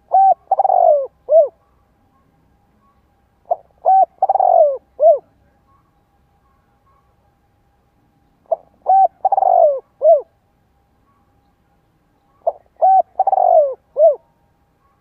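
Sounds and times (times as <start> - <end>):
dove cooing: 0.0 - 1.8, 3.4 - 5.6, 8.4 - 10.4, 12.3 - 15.0.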